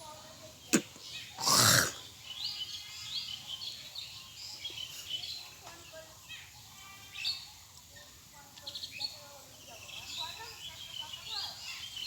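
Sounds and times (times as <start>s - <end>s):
birds chirping: 8.6s - 12.0s.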